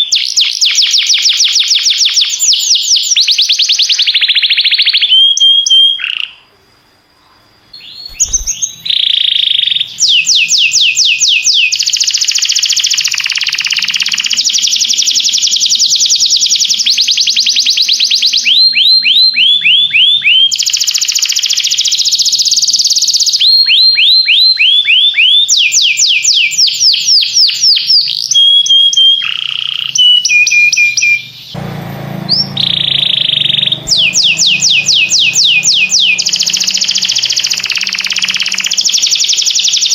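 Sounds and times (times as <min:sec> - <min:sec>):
canary singing trills: 0:00.0 - 0:06.6, 0:07.6 - 0:39.9
low hum: 0:31.6 - 0:37.7.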